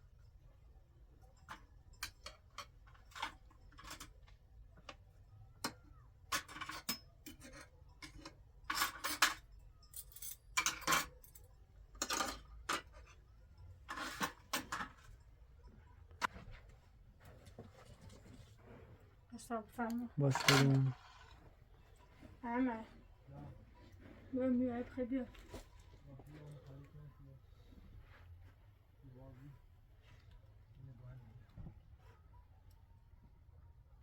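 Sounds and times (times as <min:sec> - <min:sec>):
dishes and utensils clinking: 0:01.4 - 0:04.2, 0:05.6 - 0:15.3, 0:20.2 - 0:21.9.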